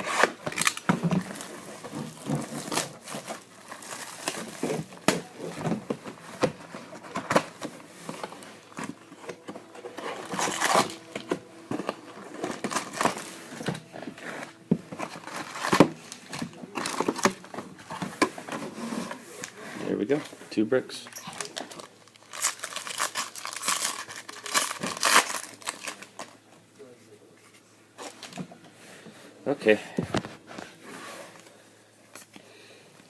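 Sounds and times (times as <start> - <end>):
plastic wrap crinkling and tearing: 0.0 - 5.6, 6.3 - 17.9, 21.3 - 26.4
box and packs clicking: 0.1 - 13.9.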